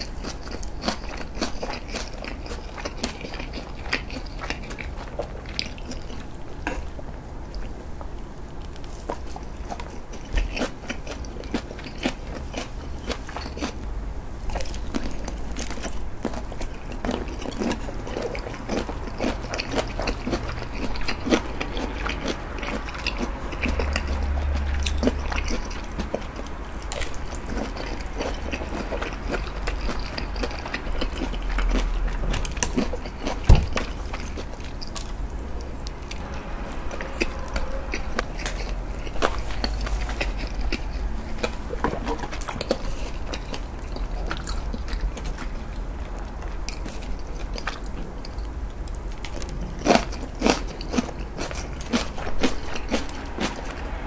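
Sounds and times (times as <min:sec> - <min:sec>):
chewing with mouth closed: 0:00.0 - 0:54.0
low rumble: 0:33.6 - 0:49.6, 0:52.1 - 0:54.0.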